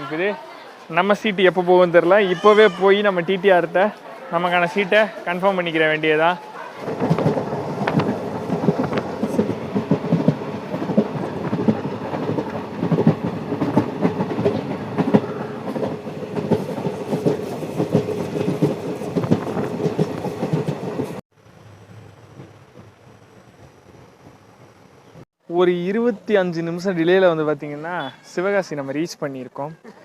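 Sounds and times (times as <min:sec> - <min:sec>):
train rumble: 0:05.6 - 0:25.3
wheels knocking on rails: 0:06.8 - 0:21.2.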